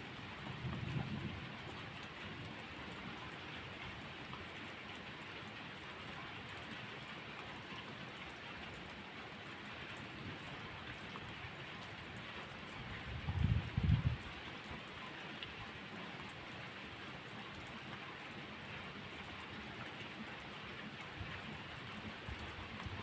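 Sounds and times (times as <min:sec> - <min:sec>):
steady rain falling: 0:00.0 - 0:23.0
low rumble of thunder: 0:00.4 - 0:02.4, 0:13.0 - 0:14.3.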